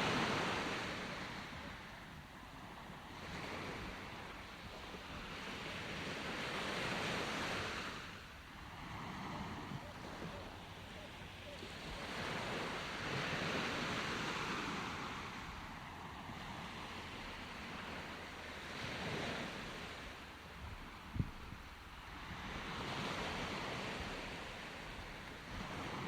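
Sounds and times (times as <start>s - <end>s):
sea waves breaking on shore: 0.0s - 26.0s.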